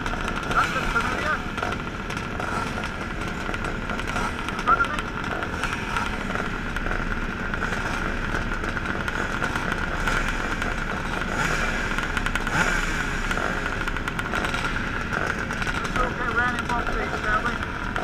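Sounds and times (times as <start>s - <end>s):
engine revs: 0.0s - 18.0s
motocross bike engines running: 0.0s - 18.0s.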